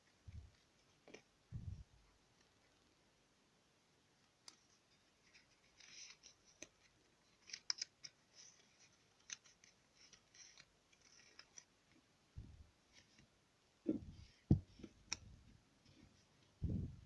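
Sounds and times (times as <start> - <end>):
crisp snipping or rustling: 4.2 - 11.7.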